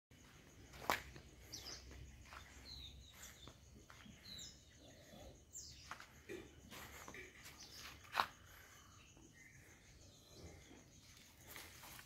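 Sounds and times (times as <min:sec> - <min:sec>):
bird chirps: 0:01.3 - 0:12.0.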